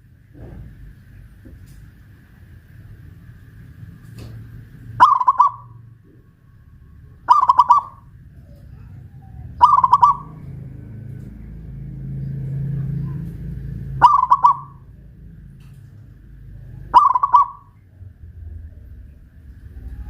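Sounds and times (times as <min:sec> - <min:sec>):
dove cooing: 0:05.0 - 0:06.2, 0:07.1 - 0:11.1, 0:12.1 - 0:15.1, 0:16.5 - 0:17.8.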